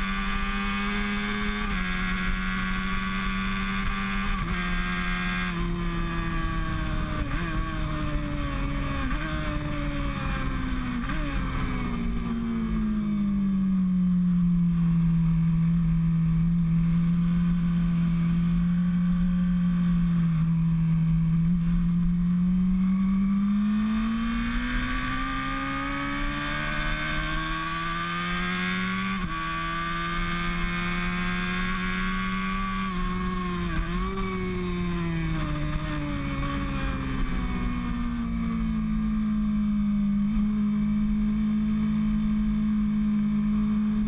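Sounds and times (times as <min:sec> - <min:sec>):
racing motorcycle engine: 0:00.0 - 0:44.0.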